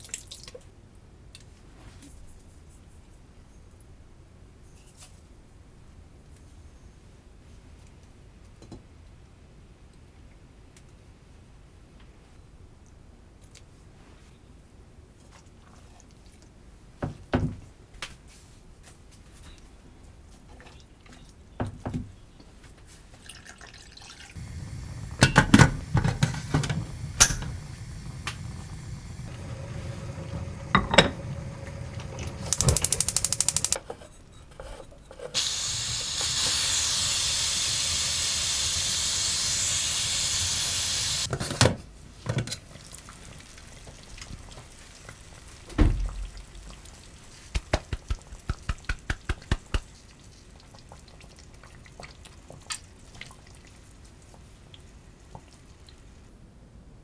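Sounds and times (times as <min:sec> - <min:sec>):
tap running: 0:24.3 - 0:33.8, 0:35.4 - 0:41.3
kitchen knocks and clatters: 0:24.8 - 0:27.6, 0:29.4 - 0:35.4.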